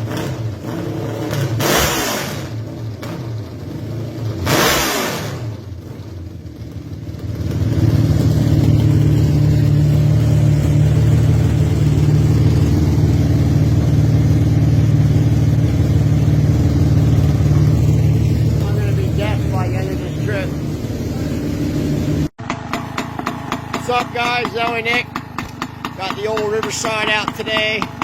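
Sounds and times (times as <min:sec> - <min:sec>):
motorcycle engine running: 0:05.5 - 0:28.0.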